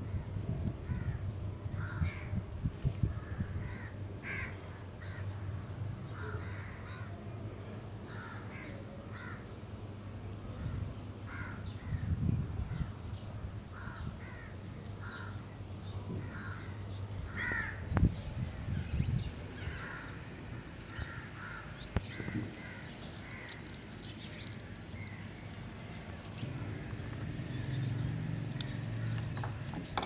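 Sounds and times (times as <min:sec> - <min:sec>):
birds rasping calls: 0:03.2 - 0:07.2, 0:13.7 - 0:18.0, 0:19.6 - 0:30.0.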